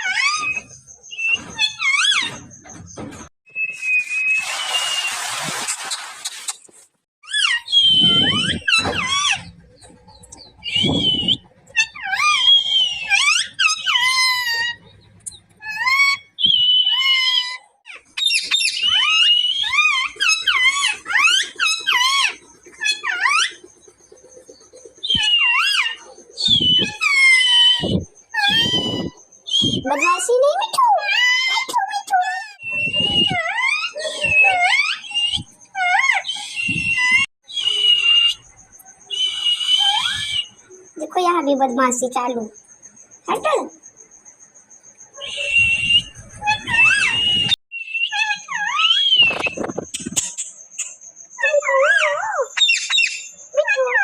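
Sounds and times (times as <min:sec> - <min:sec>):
parrot squawking: 0:00.0 - 0:02.4, 0:07.2 - 0:09.7, 0:10.6 - 0:14.9, 0:15.6 - 0:23.6, 0:25.0 - 0:38.5, 0:39.1 - 0:40.6, 0:45.2 - 0:50.4, 0:51.4 - 0:54.0.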